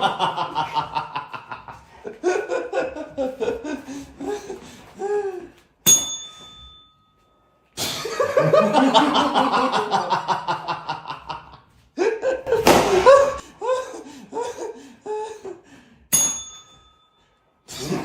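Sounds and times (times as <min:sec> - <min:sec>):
people laughing: 0:00.0 - 0:05.5, 0:08.0 - 0:15.6
bell-like ding: 0:05.8 - 0:07.5, 0:16.1 - 0:17.4.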